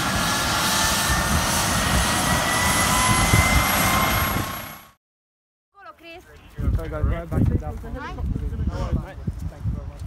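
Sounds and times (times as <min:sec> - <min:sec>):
aircraft turbine engine running: 0:00.0 - 0:05.0.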